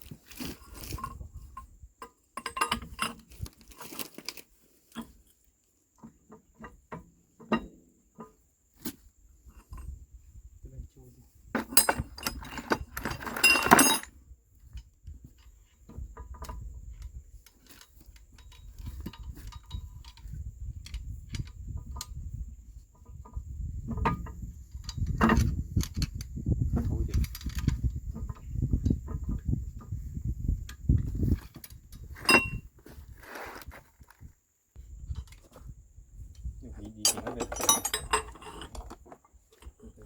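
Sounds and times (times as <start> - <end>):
metal tools clanking: 2.4 - 4.1, 11.6 - 14.1, 31.4 - 32.7, 36.8 - 39.9
ringing metal clatter: 11.6 - 14.1, 32.2 - 32.6, 37.0 - 38.9.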